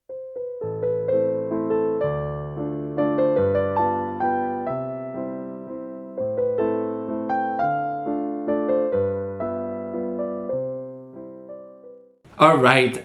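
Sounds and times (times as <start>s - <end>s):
slow solo piano: 0.0s - 12.2s.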